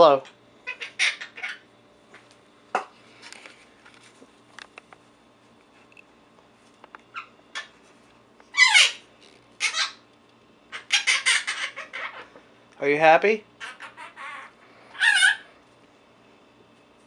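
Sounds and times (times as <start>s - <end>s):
parrot chattering calls: 0.6s - 1.7s, 7.1s - 7.8s, 8.5s - 10.0s, 10.7s - 12.4s, 13.6s - 15.5s
parrot squawking: 0.6s - 1.7s, 7.1s - 7.8s, 8.5s - 10.0s, 10.7s - 12.4s, 13.6s - 15.5s.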